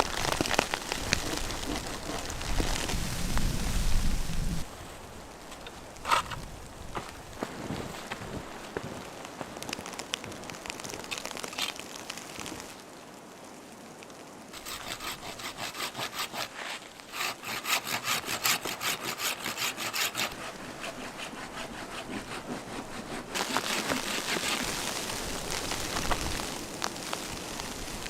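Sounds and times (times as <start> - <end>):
hand saw cutting wood: 1.1 - 2.9, 6.1 - 6.4, 14.6 - 24.8
steady hiss: 2.6 - 18.0, 23.4 - 28.0.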